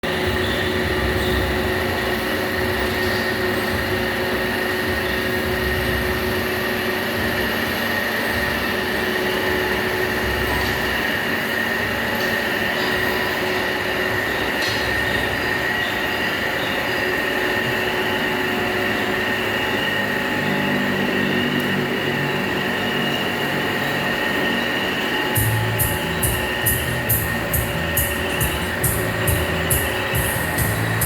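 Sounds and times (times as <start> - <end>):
lathe high whine: 0.0 - 31.0
machine hum: 0.0 - 31.0.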